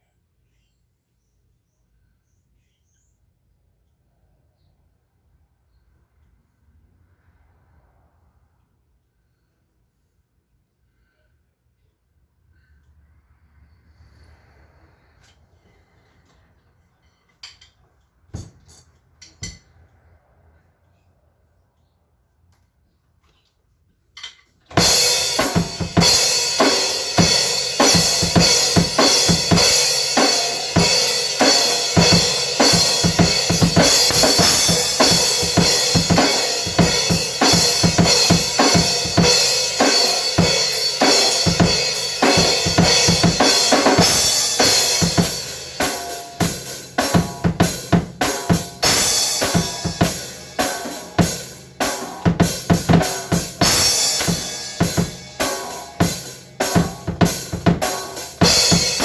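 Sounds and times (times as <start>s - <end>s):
acoustic drum kit playing: 24.7s - 59.0s
cymbals washing: 24.7s - 59.0s.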